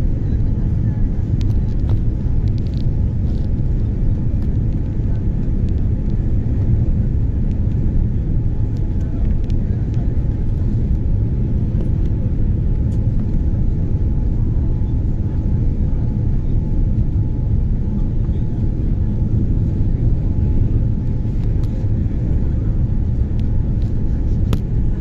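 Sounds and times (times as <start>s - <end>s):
airliner cabin rumble: 0.0s - 25.0s
faint steady whine: 0.0s - 25.0s.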